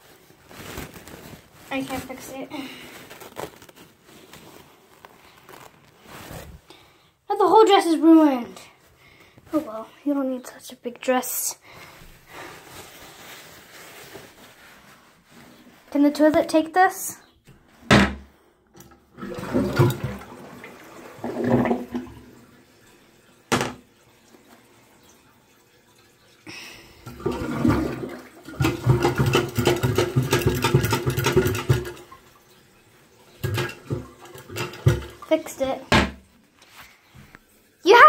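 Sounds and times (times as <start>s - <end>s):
toilet flushing: 18.8s - 36.4s.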